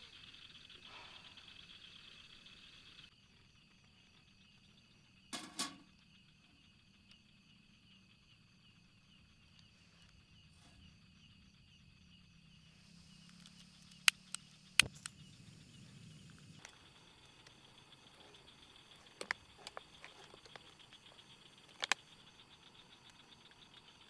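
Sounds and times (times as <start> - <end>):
insects chirping: 0.0 - 24.0
sharp clicks: 13.4 - 15.2.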